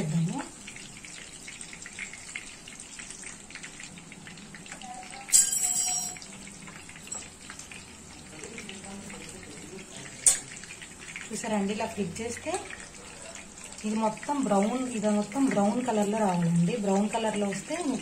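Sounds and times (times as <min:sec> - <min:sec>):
chicken sizzling in oil: 0:00.0 - 0:18.0
metal tongs clinking: 0:05.2 - 0:06.3, 0:10.2 - 0:10.5.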